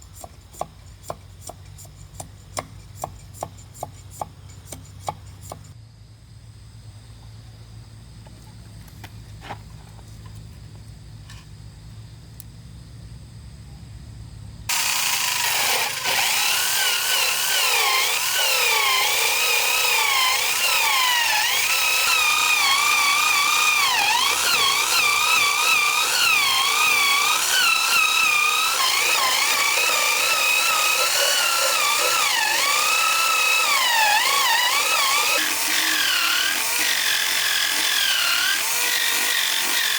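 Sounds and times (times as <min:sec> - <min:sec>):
power tool motor whining: 0:14.7 - 0:39.9.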